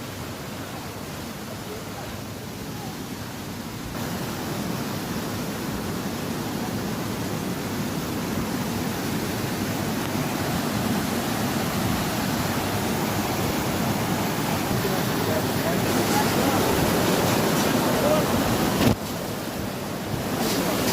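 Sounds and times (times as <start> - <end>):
waterfall roaring: 0.0 - 20.9.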